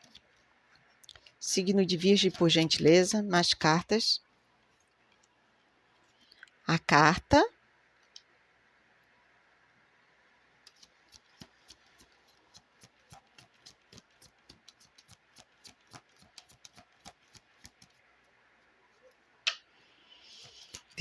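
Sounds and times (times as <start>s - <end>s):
cards shuffling by hand: 10.7s - 18.1s, 20.4s - 21.0s.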